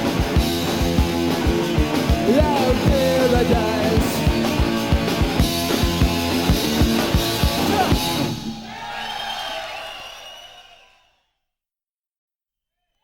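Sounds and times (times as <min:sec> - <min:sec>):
punk rock band playing: 0:00.0 - 0:08.6
drum kit beat: 0:00.0 - 0:08.7.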